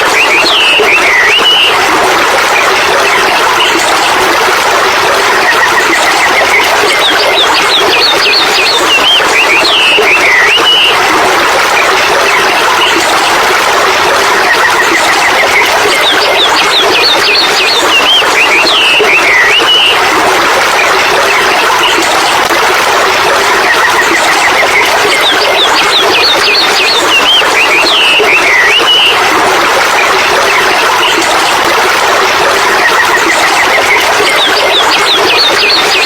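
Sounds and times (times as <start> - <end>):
birds chirping: 0.0 - 1.9, 5.6 - 11.2, 14.7 - 20.2, 23.8 - 29.3.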